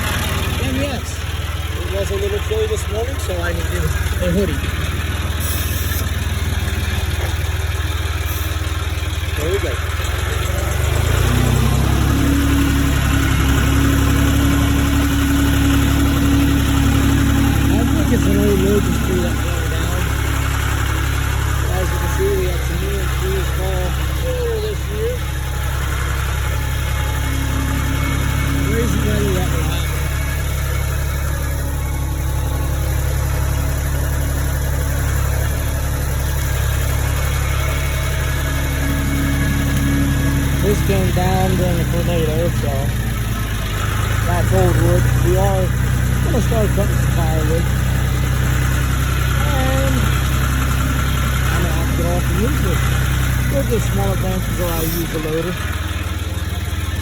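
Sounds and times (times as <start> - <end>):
tractor engine: 0.0 - 57.0
steady whine: 12.4 - 48.8.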